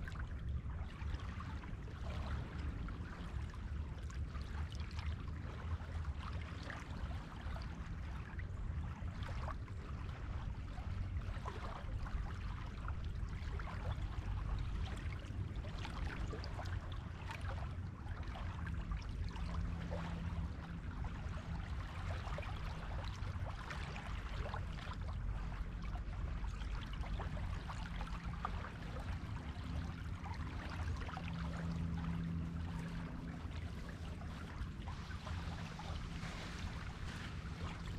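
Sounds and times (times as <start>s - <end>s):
faint low hum: 0.0s - 37.9s
waves washing onto shore: 19.5s - 37.9s.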